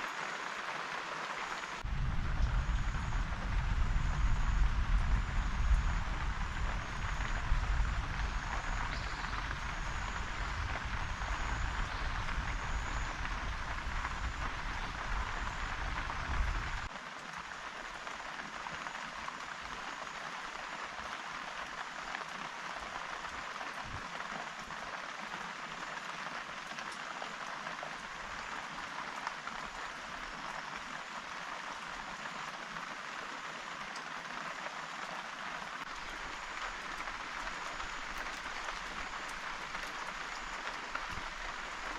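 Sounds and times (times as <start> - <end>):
steady rain falling: 0.0 - 41.9
low rumble: 1.8 - 16.9.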